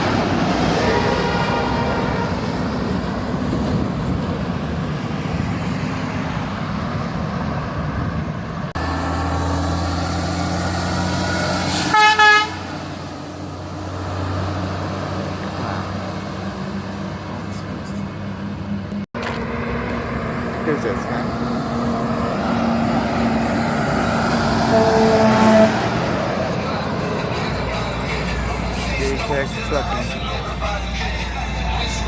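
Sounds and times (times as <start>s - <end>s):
traffic noise: 0.0s - 32.0s
air horn blasts: 0.7s - 2.5s, 11.7s - 12.8s, 24.6s - 26.0s
truck engine running: 6.2s - 32.0s.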